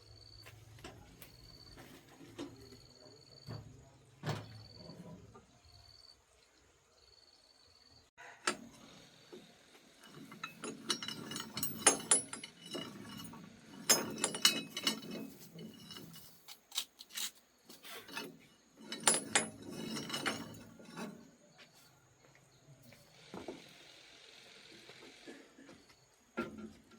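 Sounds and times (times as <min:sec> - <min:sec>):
hand tools scraping and clinking: 0:08.4 - 0:09.0, 0:10.0 - 0:21.6.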